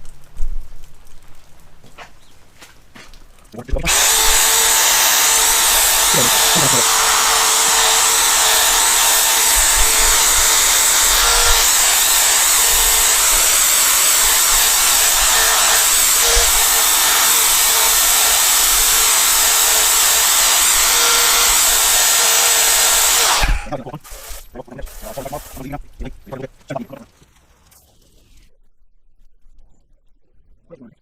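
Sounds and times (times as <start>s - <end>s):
power drill humming: 3.9s - 25.7s
sponge hissing on plastic: 23.7s - 26.0s.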